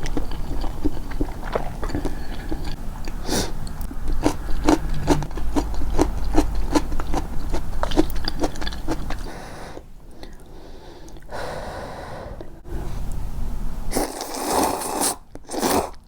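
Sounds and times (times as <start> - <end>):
mouth chewing: 0.0 - 11.3.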